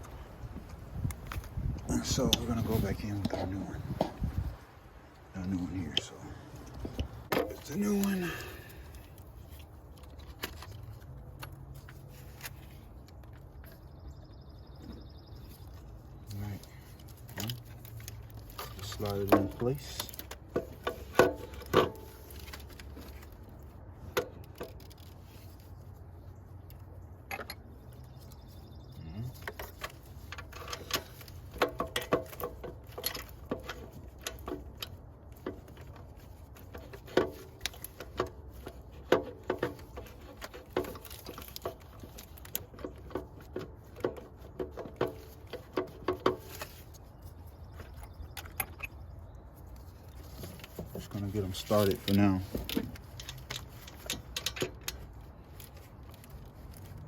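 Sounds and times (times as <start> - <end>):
metallic clicks and clunks: 27.2 - 27.7, 29.4 - 47.0, 47.7 - 49.2, 50.4 - 55.2.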